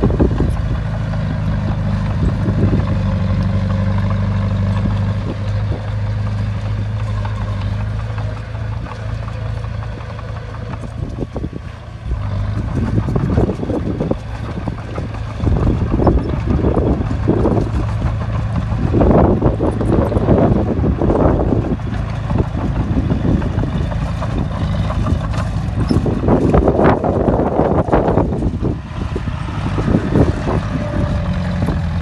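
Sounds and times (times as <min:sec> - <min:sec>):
bulldozer diesel engine drone: 0:00.0 - 0:32.0
rough gusty rushing noise: 0:11.2 - 0:32.0.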